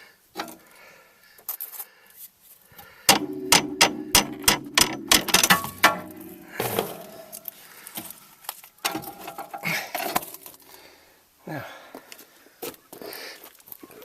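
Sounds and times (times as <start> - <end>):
ringing metal-on-metal strikes: 3.1 - 7.5.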